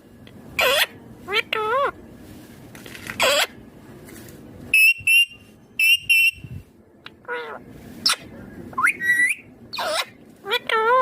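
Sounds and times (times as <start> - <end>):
parakeet shrill calls: 0.6 - 1.9, 3.2 - 3.6, 4.7 - 6.5, 7.2 - 11.0.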